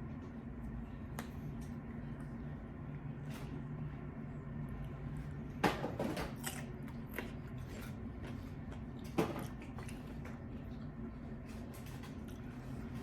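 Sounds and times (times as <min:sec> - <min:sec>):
crunchy biting and chewing: 0:06.4 - 0:10.9.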